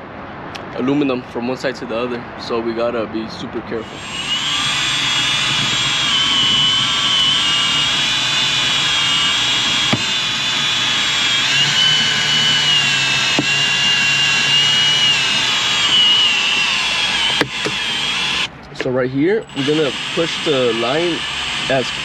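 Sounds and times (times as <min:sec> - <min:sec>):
drill-driven winder whine: 0:03.8 - 0:18.5, 0:19.5 - 0:22.0.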